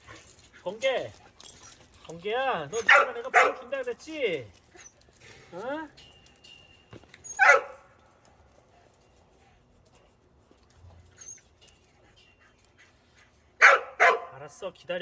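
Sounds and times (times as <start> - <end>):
faint rustles: 0.0 - 13.6
dog barking: 2.8 - 3.7, 7.4 - 7.8, 13.6 - 14.4.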